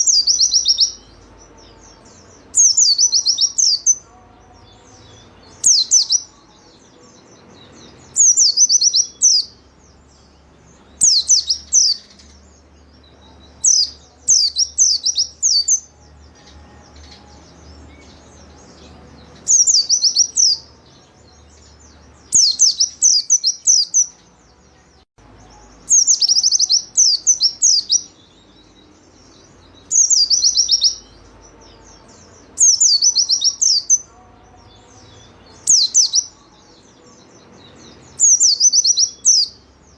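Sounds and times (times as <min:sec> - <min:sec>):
bird twittering: 0:29.8 - 0:31.1.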